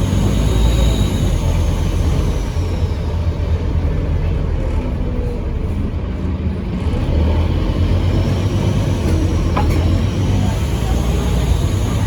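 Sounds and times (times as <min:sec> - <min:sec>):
high turbo whistle: 0:00.0 - 0:03.1
bus diesel engine drone: 0:00.0 - 0:12.0.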